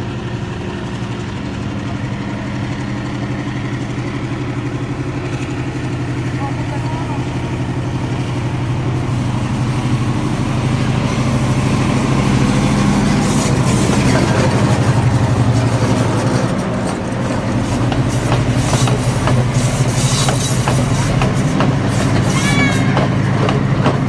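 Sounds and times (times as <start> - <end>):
diesel locomotive engine running: 0.0 - 24.0.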